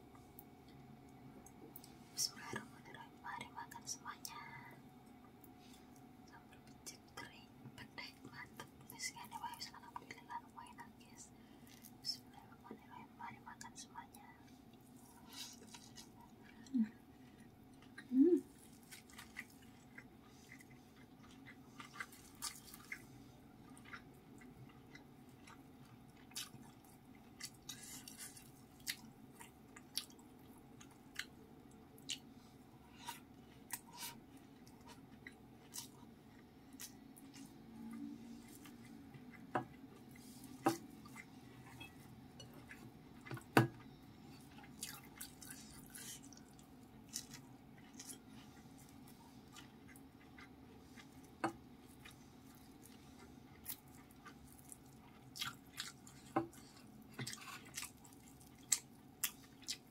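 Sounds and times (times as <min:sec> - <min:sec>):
wet chewing: 0:38.4 - 0:59.9.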